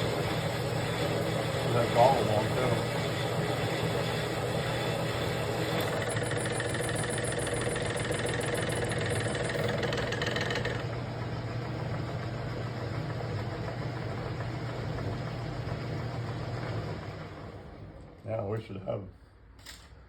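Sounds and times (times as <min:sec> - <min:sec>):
bright noisy machining layer: 0:00.0 - 0:10.8
metal lathe motor hum: 0:00.0 - 0:16.6.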